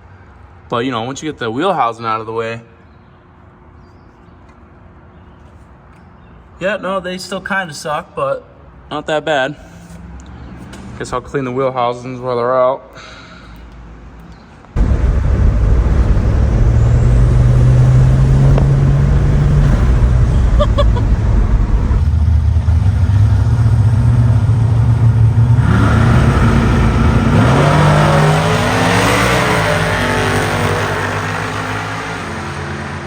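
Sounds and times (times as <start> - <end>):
car engine revving: 14.8 - 33.0.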